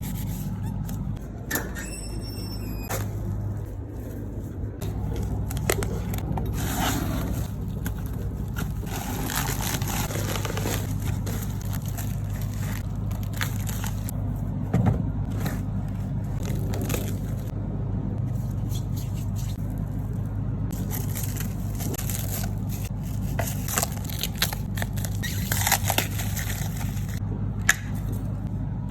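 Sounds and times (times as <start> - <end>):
high-pitched squeak: 1.5 - 3.0
low motor hum: 2.9 - 28.9.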